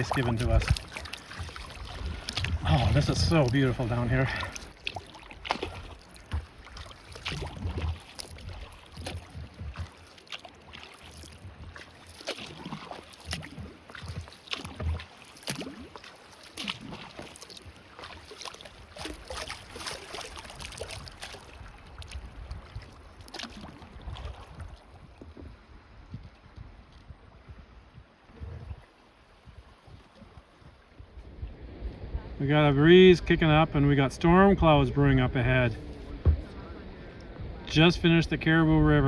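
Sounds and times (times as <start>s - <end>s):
paddle splashing in water: 0.0s - 39.0s
low thuds: 31.2s - 39.0s.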